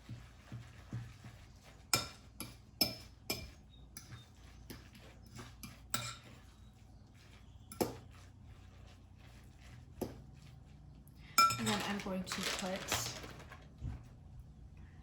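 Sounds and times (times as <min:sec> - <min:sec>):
fork clinking against a bowl: 0:01.9 - 0:06.6, 0:11.4 - 0:11.9.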